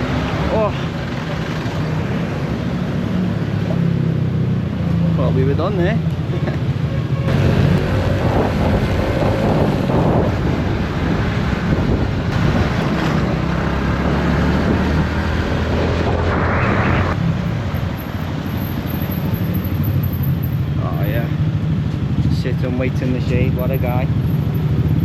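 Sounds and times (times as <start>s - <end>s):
wind rushing over microphone: 7.3s - 17.4s.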